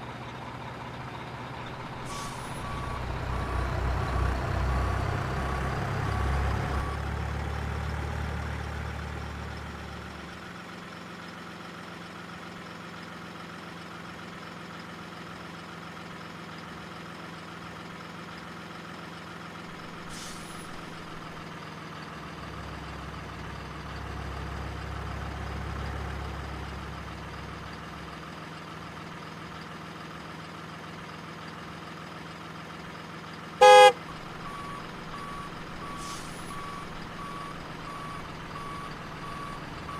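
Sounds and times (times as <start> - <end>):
loud horn blast: 33.6 - 34.0.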